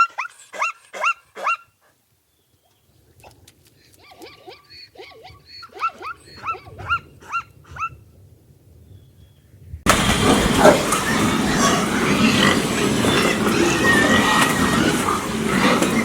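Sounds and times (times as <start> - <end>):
dog yelping: 4.1 - 8.0, 10.5 - 11.6
loud rough noise: 9.9 - 16.0.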